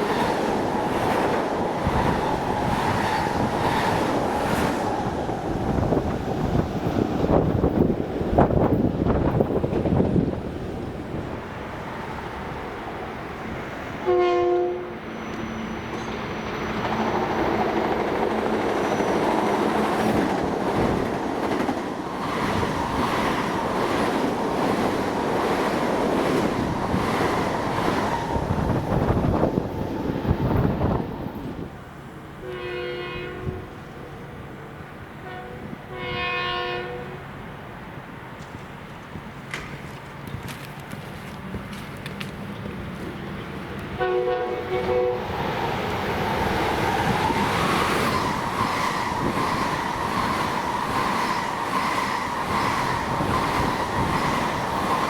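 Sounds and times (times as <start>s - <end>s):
train rumbling past: 0.0s - 55.0s
train horn blast: 14.0s - 15.8s, 32.4s - 34.0s, 35.2s - 37.3s, 44.0s - 45.3s
wheels clicking over rail joints: 38.4s - 44.0s.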